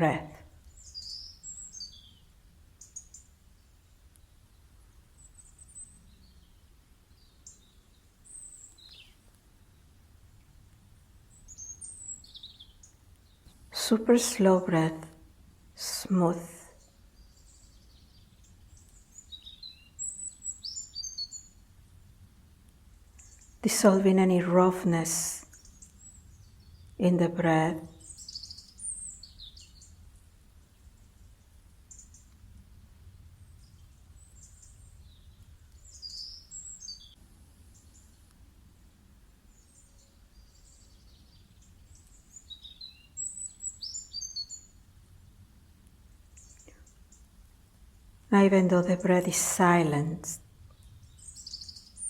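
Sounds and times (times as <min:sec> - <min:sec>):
low steady hum: 0:00.0 - 0:19.4, 0:20.0 - 0:28.3, 0:44.6 - 0:52.0
small bird chirping: 0:00.1 - 0:09.9, 0:11.3 - 0:13.8, 0:16.8 - 0:21.6, 0:23.1 - 0:23.7, 0:25.4 - 0:27.0, 0:27.8 - 0:32.4, 0:33.4 - 0:38.3, 0:39.5 - 0:44.9, 0:46.2 - 0:47.4, 0:50.0 - 0:52.0.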